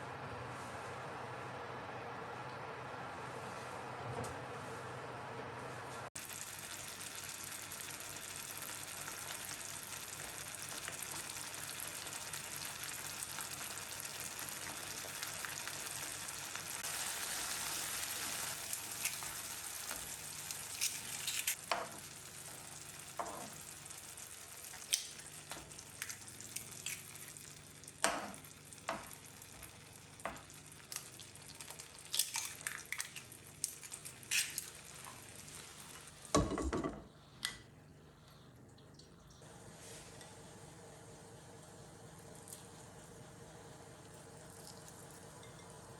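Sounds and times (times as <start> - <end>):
food sizzling in a pan: 6.2 - 32.0.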